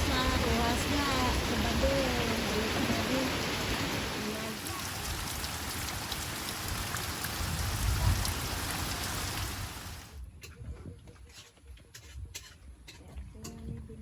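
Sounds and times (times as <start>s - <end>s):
rain falling: 0.0s - 10.2s.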